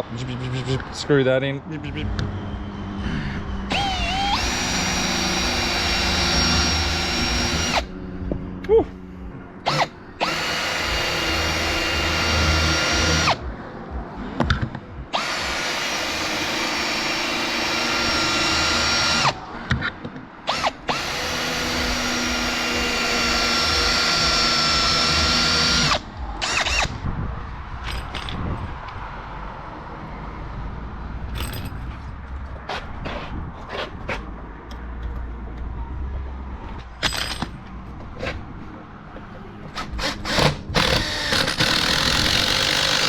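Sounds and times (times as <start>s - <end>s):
power drill driving screws: 3.7s - 7.9s, 9.7s - 13.4s, 15.2s - 19.4s, 20.5s - 26.9s, 39.8s - 43.0s.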